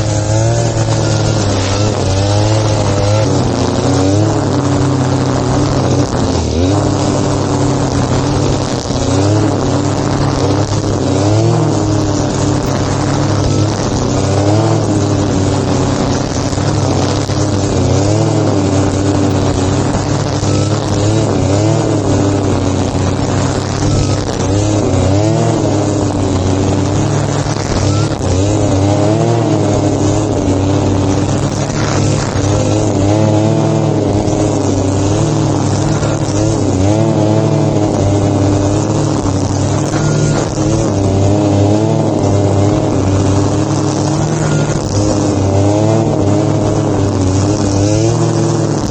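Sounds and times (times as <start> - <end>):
lawn mower engine running: 0.0 - 48.9.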